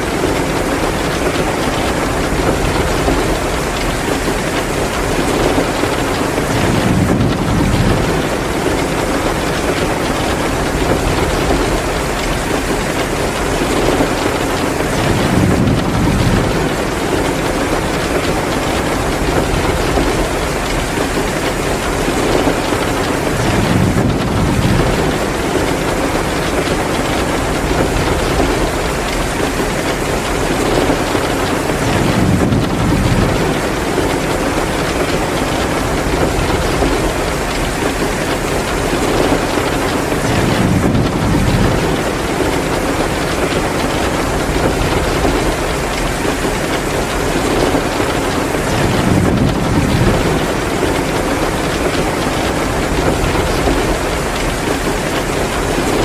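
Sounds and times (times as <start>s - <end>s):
heavy rain downpour: 0.0s - 56.0s.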